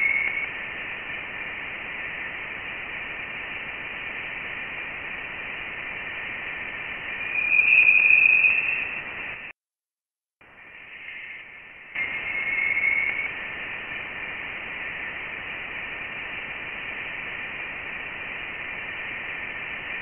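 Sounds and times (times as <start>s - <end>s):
static-like hiss: 0.0s - 9.6s, 10.4s - 20.0s.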